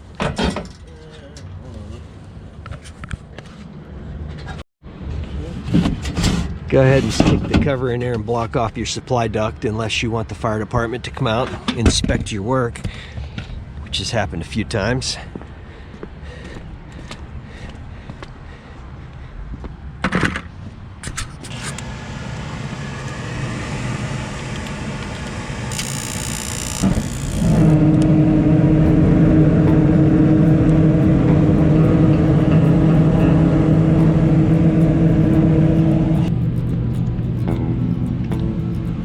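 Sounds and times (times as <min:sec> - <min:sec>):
machine running with low hum: 0:21.5 - 0:39.0.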